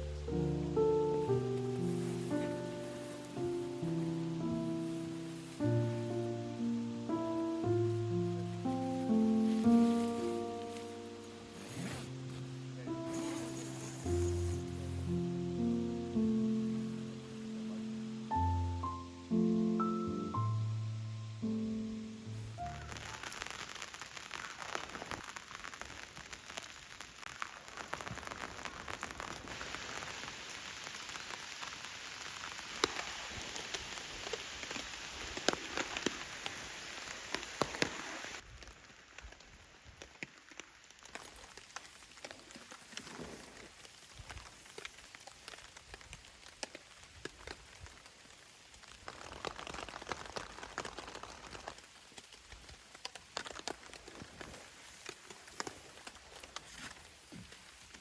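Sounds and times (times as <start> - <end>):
heavy rain falling: 0.0 - 20.0, 21.6 - 56.6
sharp close raindrop hits: 22.5 - 38.1, 45.6 - 54.4.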